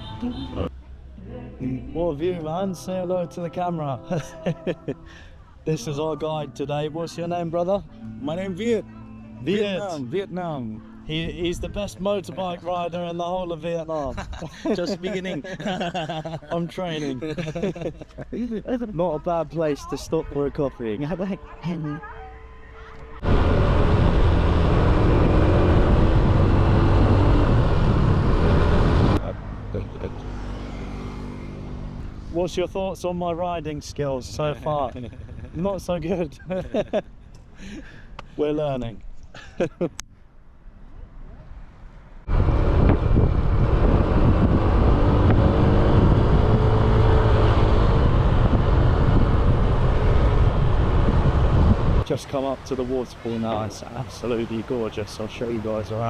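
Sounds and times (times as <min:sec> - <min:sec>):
wind rushing on microphone: 0:42.3 - 0:52.1.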